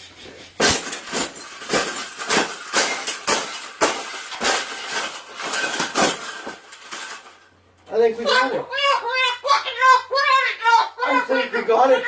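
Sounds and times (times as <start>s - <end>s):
rattling clatter: 0.6s - 7.5s.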